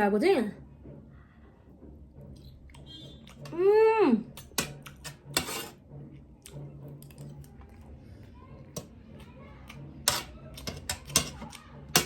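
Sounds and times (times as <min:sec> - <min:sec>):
chewing: 0:06.4 - 0:08.3.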